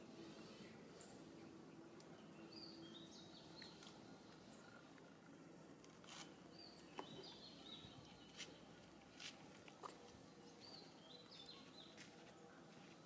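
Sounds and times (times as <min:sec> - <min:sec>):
bird chirping: 0:00.4 - 0:04.9, 0:06.5 - 0:08.8, 0:10.3 - 0:12.0.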